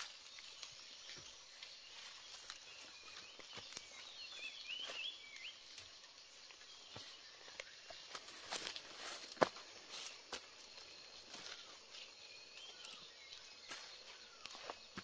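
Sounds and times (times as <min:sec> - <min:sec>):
high wavering bird chirp: 0:00.0 - 0:05.7, 0:11.1 - 0:15.0
outdoor rustling: 0:00.0 - 0:15.0.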